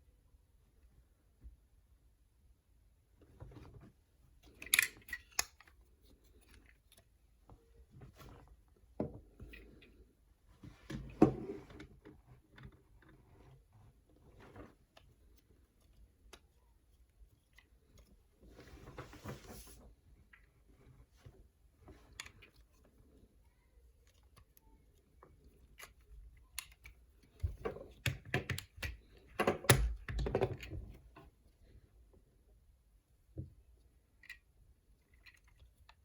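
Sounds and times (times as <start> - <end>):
plastic clicks and knocks: 25.8 - 30.9.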